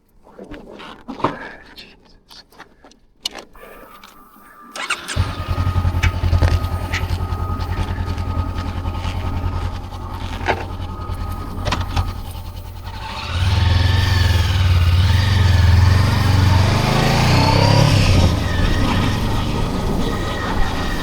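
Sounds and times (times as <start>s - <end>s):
motorcycle engine revving: 4.8s - 21.0s.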